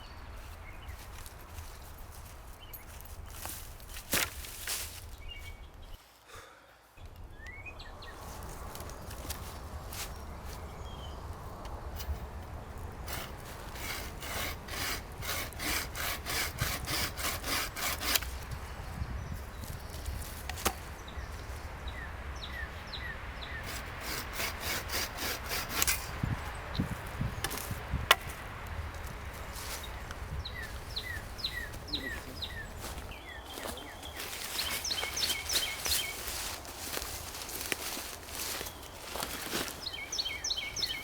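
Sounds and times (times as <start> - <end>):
hand saw cutting wood: 13.0 - 18.4, 23.6 - 26.3.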